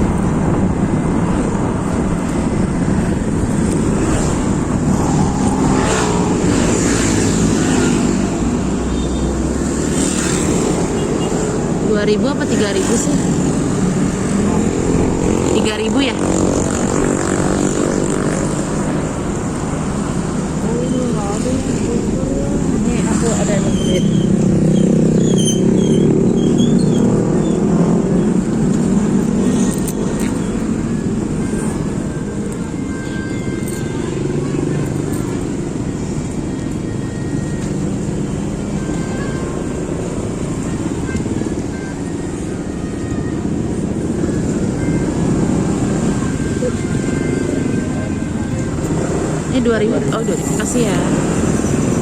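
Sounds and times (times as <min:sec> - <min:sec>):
vehicle passing: 0:00.0 - 0:08.9, 0:09.5 - 0:32.2
road traffic: 0:00.0 - 0:52.0
vehicle engine: 0:00.0 - 0:52.0.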